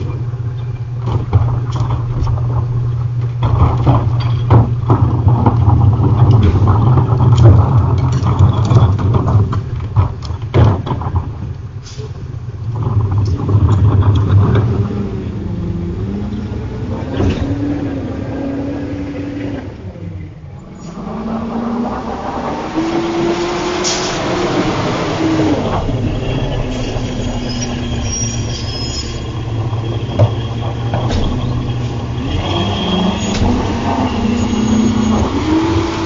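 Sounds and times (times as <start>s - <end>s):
metal clanks and knocks: 0.0s - 15.0s, 25.7s - 33.8s
diesel engine rumbling and revving: 0.0s - 36.0s.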